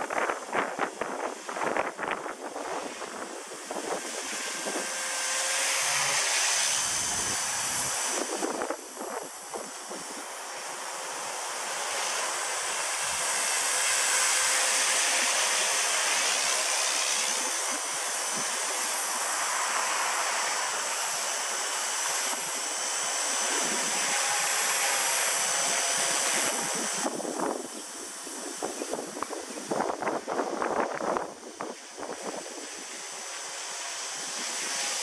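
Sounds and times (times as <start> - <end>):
wind on microphone: 0.0 - 10.3, 22.2 - 33.1
rc helicopter rotor whine: 0.0 - 35.0.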